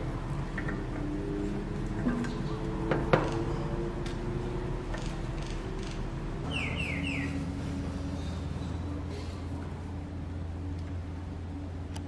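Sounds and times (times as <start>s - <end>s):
steady low hum: 0.0s - 12.0s
bird whistling descending notes: 6.5s - 7.5s.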